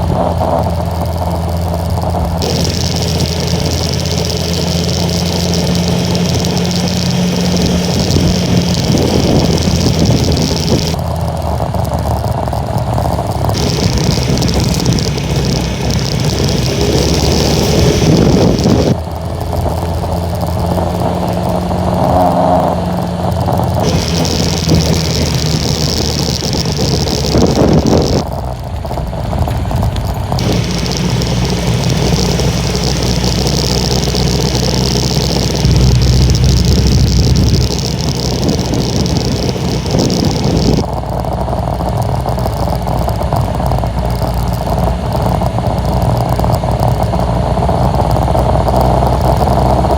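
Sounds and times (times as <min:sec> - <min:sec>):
small motorcycle engine running: 0:00.0 - 0:49.9
high hiss: 0:02.4 - 0:11.0, 0:13.6 - 0:19.0, 0:23.8 - 0:28.2, 0:30.4 - 0:40.8
strong wind rushing: 0:13.2 - 0:19.0, 0:22.7 - 0:28.3.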